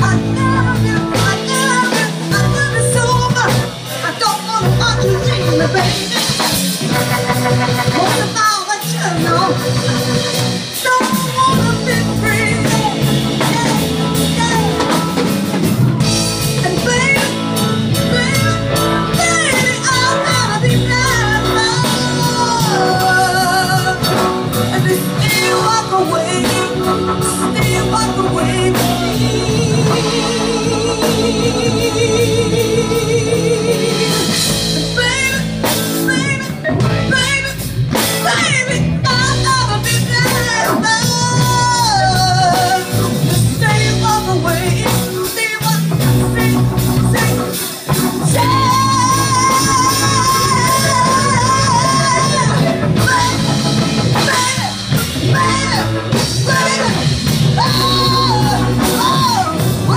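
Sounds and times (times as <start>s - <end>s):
soul-blues ballad with band: 0.0s - 59.9s.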